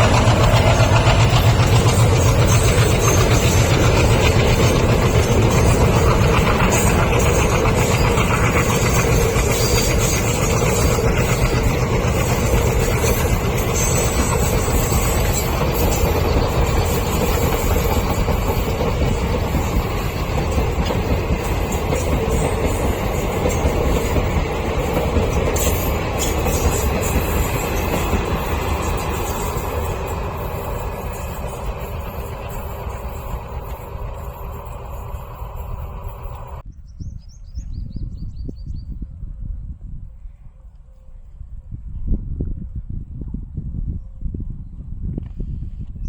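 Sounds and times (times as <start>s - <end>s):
train rumbling on rails: 0.0s - 36.7s.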